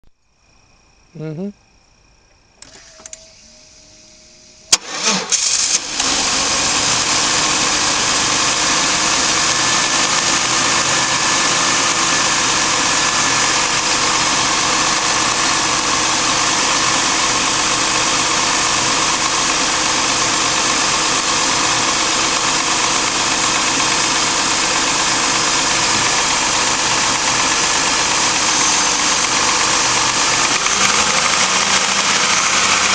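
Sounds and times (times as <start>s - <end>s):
car engine cranking: 2.6s - 3.7s, 4.7s - 32.9s
ignition click: 2.6s - 3.7s
car engine idling: 2.6s - 32.9s.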